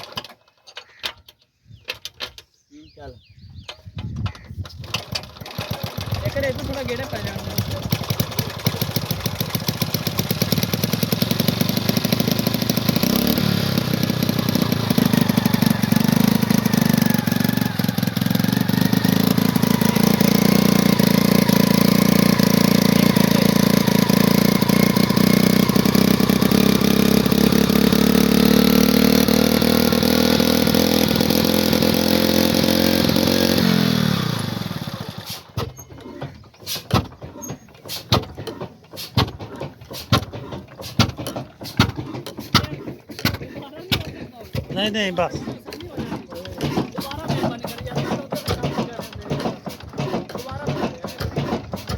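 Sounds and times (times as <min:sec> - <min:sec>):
diesel engine running: 0:05.0 - 0:41.6
knocks and clicks: 0:35.6 - 0:51.9.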